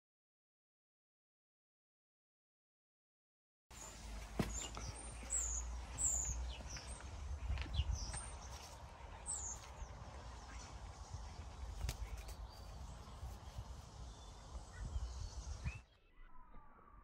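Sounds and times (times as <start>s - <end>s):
birds chirping: 3.7s - 16.7s.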